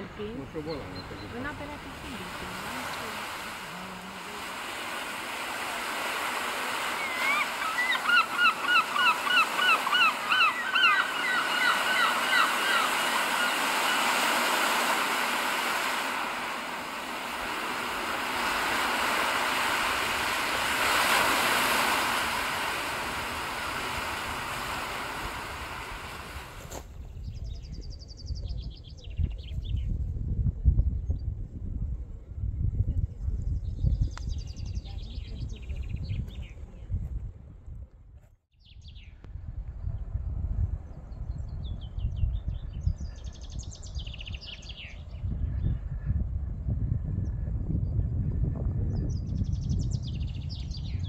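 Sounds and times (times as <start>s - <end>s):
steady rushing noise: 0.0s - 26.8s
bird calling short rising notes: 2.4s - 26.7s.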